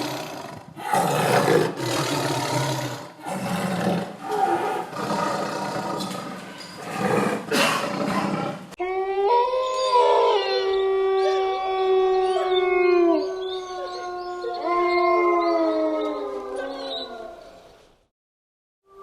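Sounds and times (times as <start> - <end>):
dogs howling: 8.8 - 17.6.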